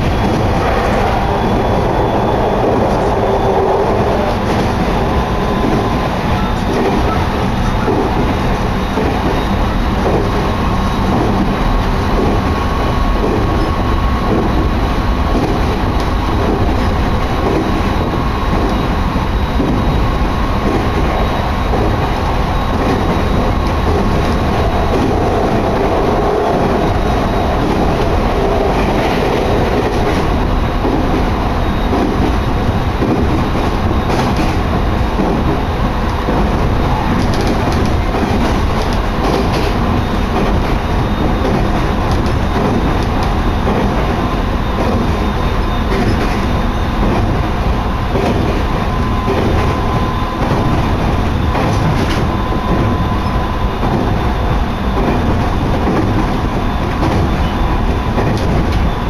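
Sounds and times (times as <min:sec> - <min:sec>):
electric train running: 0:00.0 - 0:59.0.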